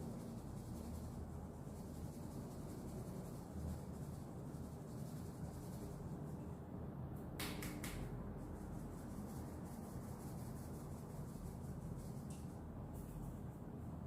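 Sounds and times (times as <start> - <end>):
flour sifting through sieve: 0.0 - 6.5.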